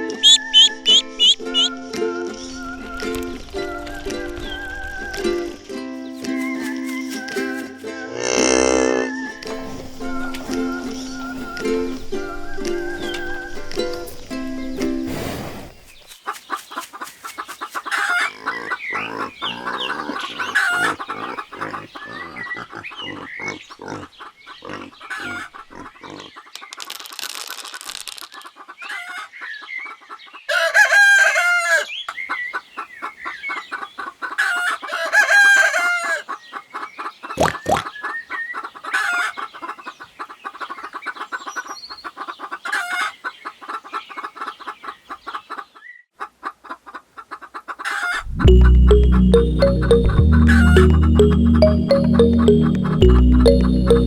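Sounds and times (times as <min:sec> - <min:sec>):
rooster crowing: 0:00.0 - 0:01.7, 0:30.5 - 0:31.9, 0:34.9 - 0:36.2
chickens clucking: 0:00.0 - 0:14.9, 0:15.9 - 0:26.6, 0:28.4 - 0:54.0.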